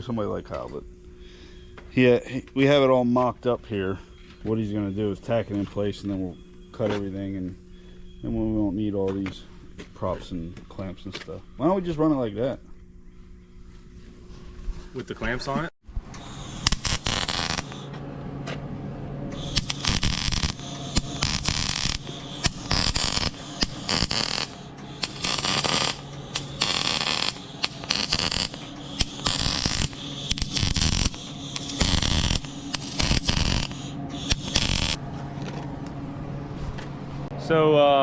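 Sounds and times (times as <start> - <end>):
steady low hum: 0.0 - 38.0
arc welding crackling: 16.1 - 17.9, 19.3 - 35.0.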